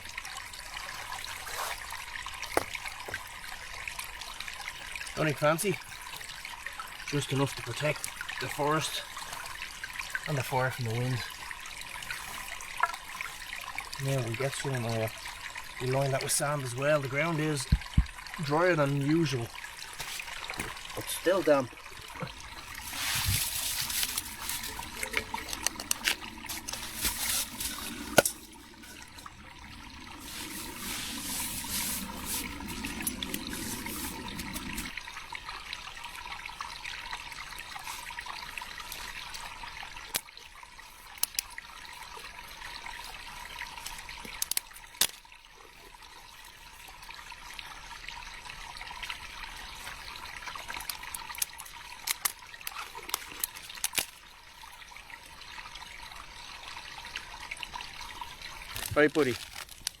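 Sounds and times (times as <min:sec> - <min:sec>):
water trickling: 0:00.0 - 1:00.0.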